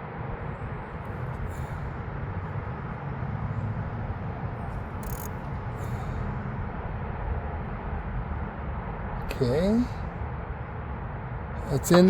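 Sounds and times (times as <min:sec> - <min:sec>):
sharp click: 0:05.0 - 0:05.4.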